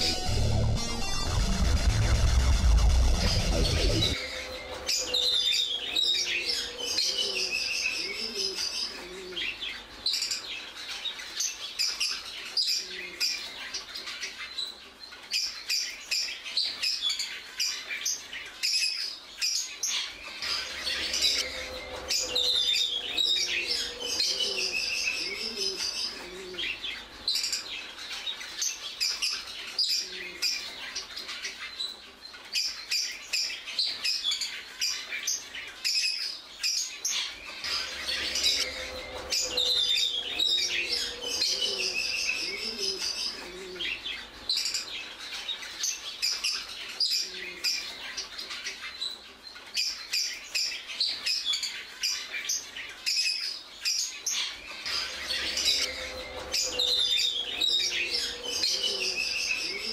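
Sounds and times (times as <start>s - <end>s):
birds chirping and twittering: 0.0s - 59.9s.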